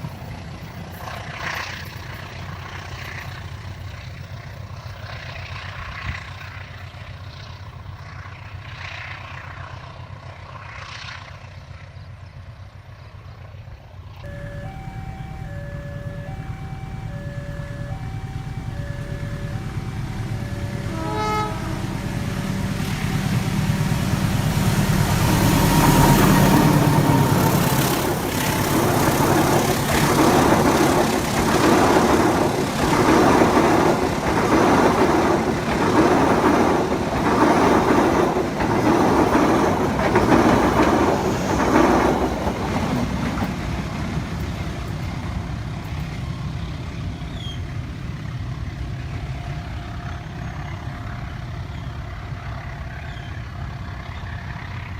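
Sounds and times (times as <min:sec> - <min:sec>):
locomotive engine drone: 0:00.0 - 0:54.9
train wheels clattering on rails: 0:14.4 - 0:54.9.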